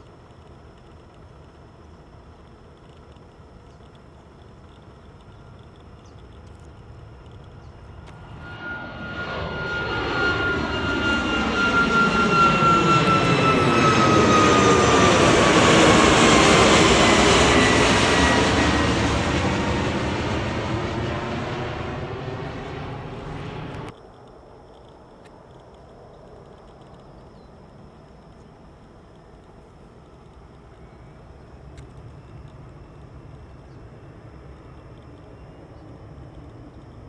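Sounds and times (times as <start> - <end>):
high fan whine: 0.0 - 37.0
jet airliner passing: 5.6 - 24.0.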